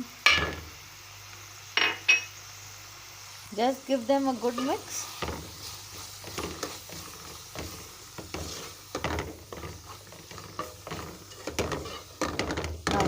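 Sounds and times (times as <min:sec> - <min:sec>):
light sizzle of oil: 0:00.0 - 0:13.0
utensil scraping a pan: 0:04.4 - 0:13.0.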